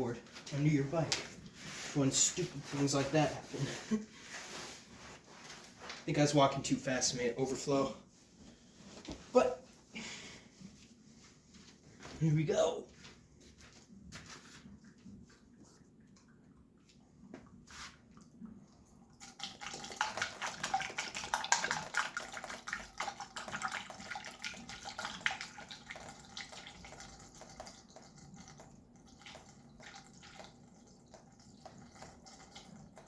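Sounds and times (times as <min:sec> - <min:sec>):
coolant pouring with gurgles: 0:16.5 - 0:33.0.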